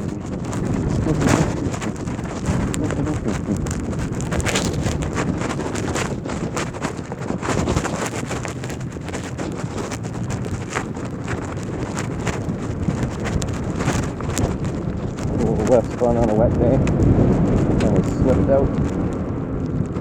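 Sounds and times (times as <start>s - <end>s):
clicks and crackles: 0.0s - 20.0s
wind buffeting microphone: 0.0s - 20.0s.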